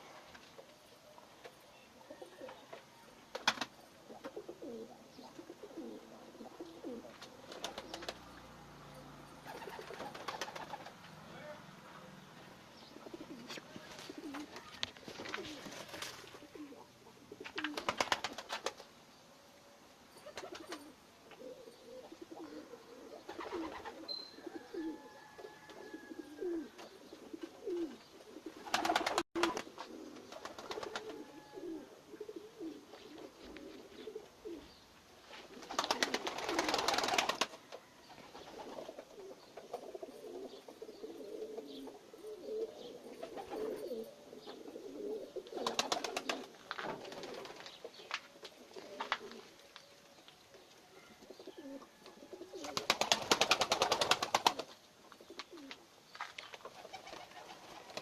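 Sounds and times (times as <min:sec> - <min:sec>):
pigeons cooing: 0:00.0 - 0:08.6, 0:09.4 - 0:11.5, 0:12.8 - 0:18.7, 0:20.2 - 0:34.8, 0:35.4 - 0:50.0, 0:50.8 - 0:55.8
wing-flapping clatter: 0:07.2 - 0:08.3, 0:09.5 - 0:11.1, 0:13.9 - 0:16.4, 0:17.4 - 0:18.9, 0:28.7 - 0:31.2, 0:35.5 - 0:37.6, 0:45.6 - 0:47.8, 0:52.6 - 0:54.8.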